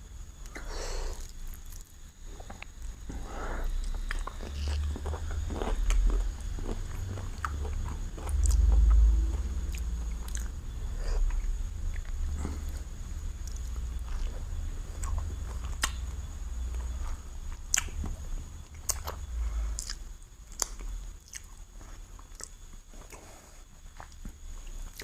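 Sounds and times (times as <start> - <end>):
chewing and biting food: 3.8 - 12.2, 13.5 - 21.6
wet mouth clicks and crunches: 15.0 - 16.0, 17.7 - 18.0, 18.8 - 21.5.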